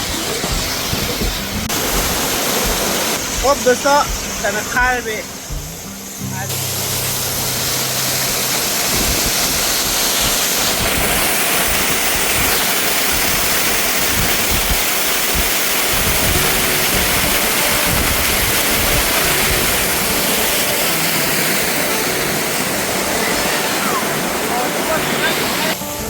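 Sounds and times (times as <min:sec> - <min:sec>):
waterfall crashing: 0:00.0 - 0:26.0
wind buffeting microphone: 0:07.4 - 0:24.5.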